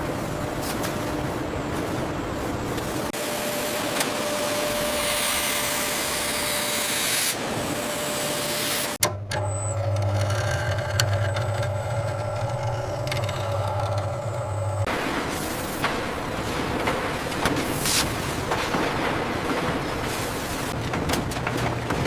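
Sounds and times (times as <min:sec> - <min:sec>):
low machine hum: 0:09.0 - 0:22.0.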